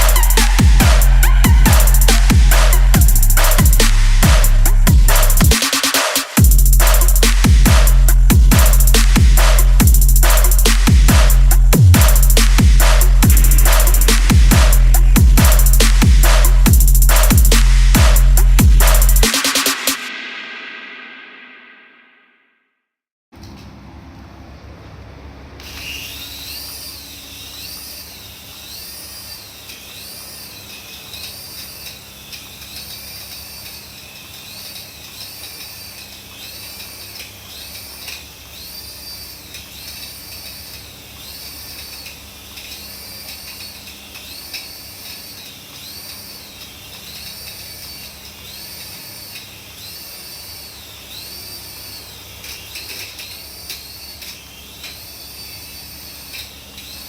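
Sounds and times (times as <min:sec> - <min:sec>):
warbling siren-like toy tone: 0:00.0 - 0:20.2
steady low hum: 0:00.0 - 0:21.8.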